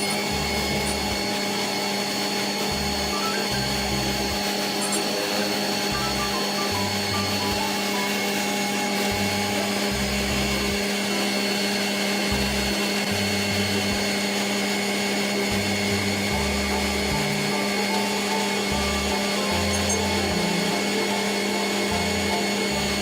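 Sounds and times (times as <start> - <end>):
motor drone: 0.0 - 23.0
background music bass line: 15.6 - 23.0.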